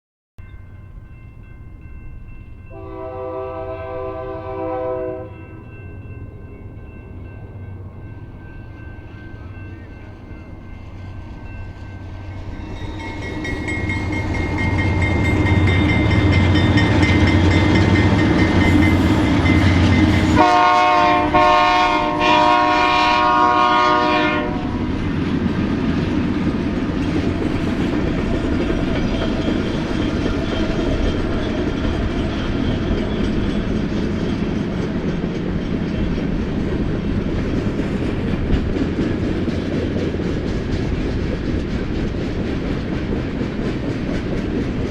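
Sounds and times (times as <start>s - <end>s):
locomotive engine rumble: 0.5s - 44.9s
train wheels on rails: 0.5s - 44.9s
locomotive horn blast: 2.7s - 5.4s, 17.6s - 24.8s.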